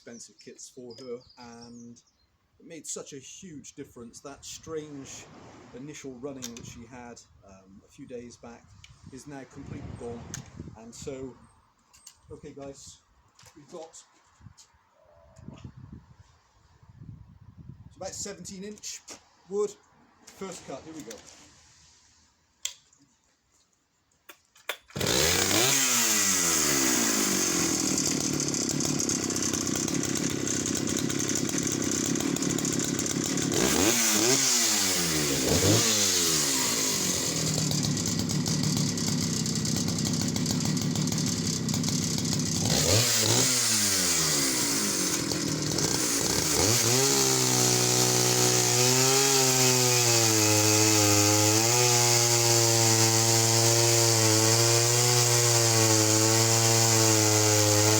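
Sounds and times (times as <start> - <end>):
chainsaw cutting log: 24.7 - 57.9.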